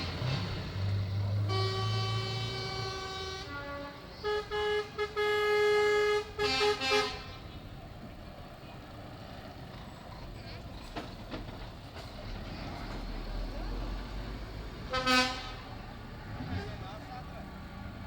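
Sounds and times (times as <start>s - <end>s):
truck horn blasts: 1.3s - 7.7s, 14.9s - 15.9s.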